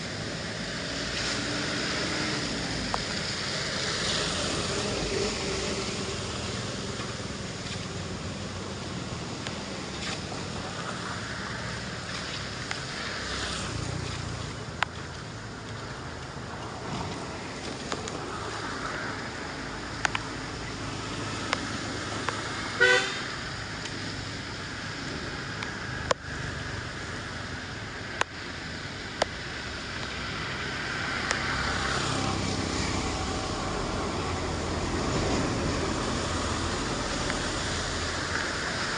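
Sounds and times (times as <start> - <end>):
steady rushing noise: 0.0 - 38.9
vehicle horn beep: 22.8 - 23.3.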